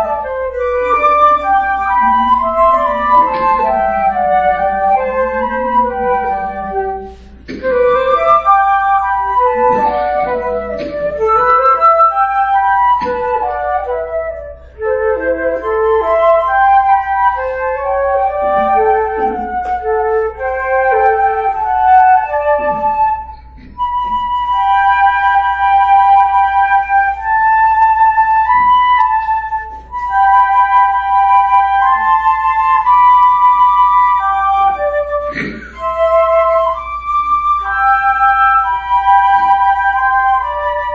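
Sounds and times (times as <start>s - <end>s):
two flutes playing melody: 0.0s - 40.9s.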